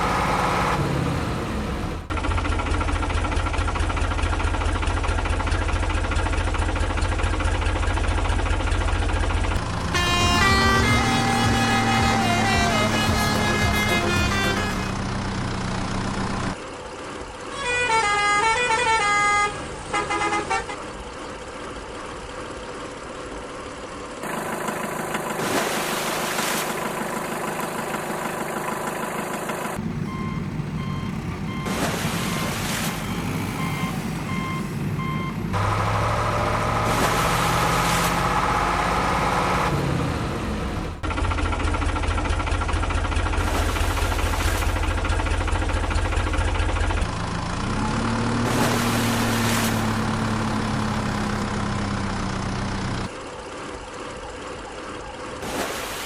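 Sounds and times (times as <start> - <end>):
truck and tractor engines running: 0.0 - 56.0
horn honks: 9.6 - 16.1, 17.5 - 21.0
tooting horn notes: 9.6 - 16.2.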